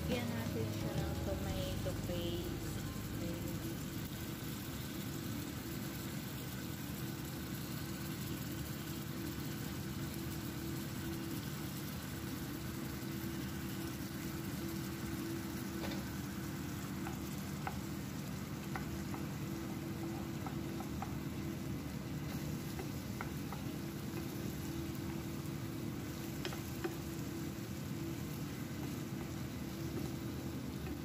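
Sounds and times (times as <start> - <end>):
low hum: 0.0 - 4.4
food sizzling in a frying pan: 0.0 - 31.0.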